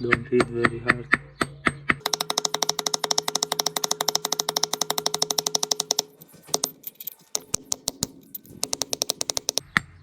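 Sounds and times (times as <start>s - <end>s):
rapid metal tapping with ringing: 2.0s - 9.7s.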